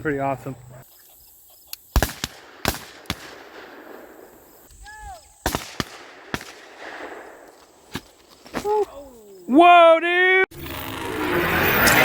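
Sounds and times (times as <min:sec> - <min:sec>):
shotgun shots with echo: 0:02.0 - 0:04.4, 0:05.4 - 0:07.5.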